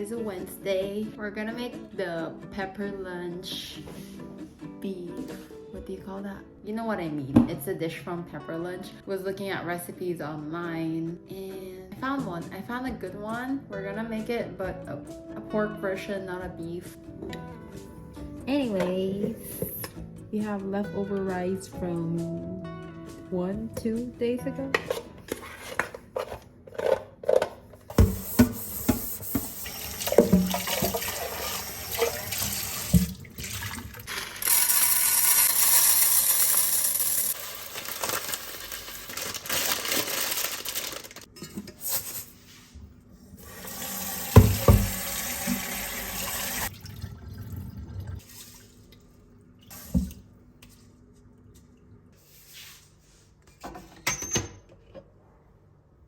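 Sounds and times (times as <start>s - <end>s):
tap running into sink: 27.9s - 33.3s, 44.0s - 46.7s.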